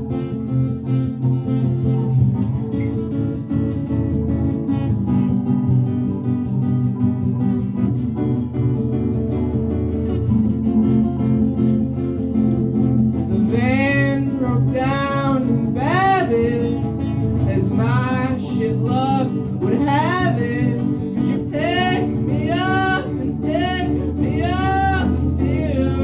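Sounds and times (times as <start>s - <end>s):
guitar and bass backing: 0.0s - 26.0s
wavering sliding melody line: 13.3s - 26.0s.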